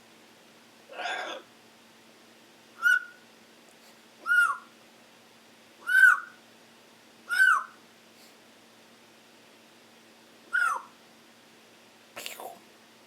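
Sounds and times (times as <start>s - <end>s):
pet bird calling: 0.9s - 1.4s, 2.8s - 3.2s, 4.2s - 4.7s, 5.8s - 6.4s, 7.3s - 7.8s, 10.5s - 11.0s.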